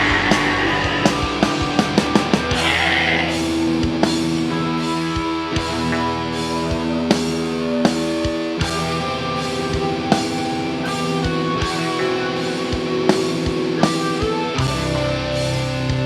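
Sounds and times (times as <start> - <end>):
drum kit hits: 0.0 - 4.6
distorted electric guitars: 0.0 - 16.0.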